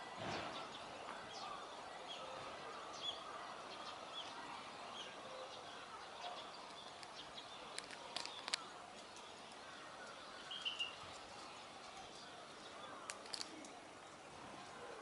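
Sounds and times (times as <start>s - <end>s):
small bird chirping: 6.1s - 11.0s
sharp clicks: 6.7s - 8.6s, 13.0s - 13.7s.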